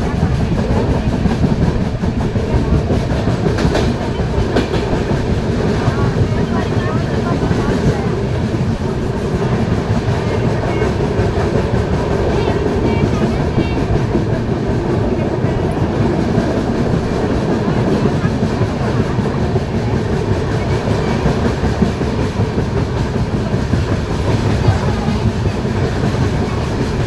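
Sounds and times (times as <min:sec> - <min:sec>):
passenger train rumbling: 0:00.0 - 0:27.0
wheels clattering over rail joints: 0:00.0 - 0:27.0.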